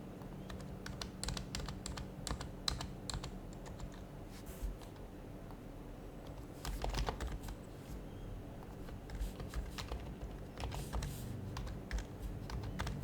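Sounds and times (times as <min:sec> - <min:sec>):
keyboard typing: 0:00.5 - 0:04.1, 0:06.2 - 0:07.6, 0:08.8 - 0:13.0.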